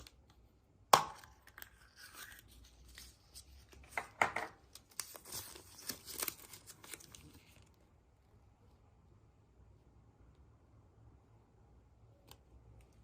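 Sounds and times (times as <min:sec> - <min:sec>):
wrapper crinkling and tearing: 0:04.7 - 0:07.7.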